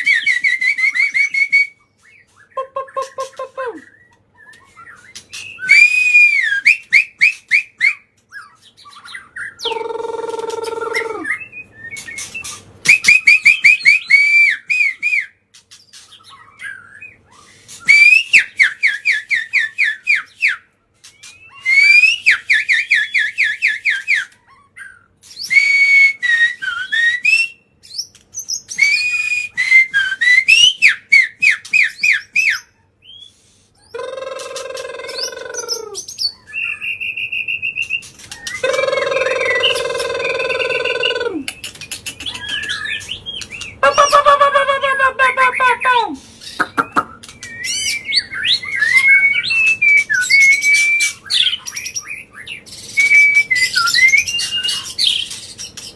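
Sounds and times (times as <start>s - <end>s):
bird singing whistled notes: 3.8s - 44.2s, 46.5s - 55.9s
harsh bird call: 9.6s - 14.6s, 33.9s - 52.3s.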